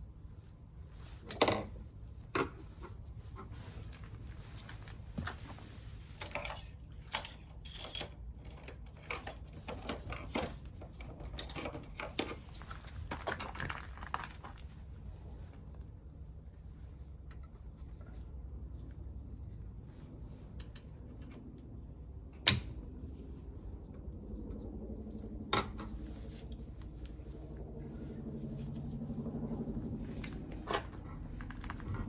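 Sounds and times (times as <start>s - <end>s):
steady low hum: 0.0s - 32.0s
metal tools clinking on workbench: 6.2s - 9.5s.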